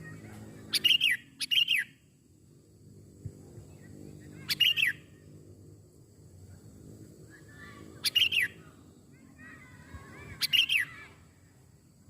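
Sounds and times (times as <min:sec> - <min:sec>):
faint low hum: 0:00.0 - 0:12.0
bulbul calling: 0:00.6 - 0:02.0, 0:04.3 - 0:05.2, 0:08.0 - 0:08.7, 0:10.2 - 0:11.0.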